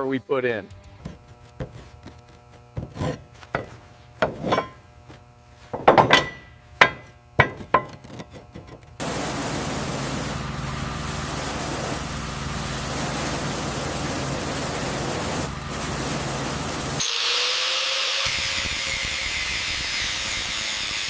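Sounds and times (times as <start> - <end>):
workshop tool knocks and scrapes: 1.0 - 8.9
steady hiss: 9.0 - 17.0.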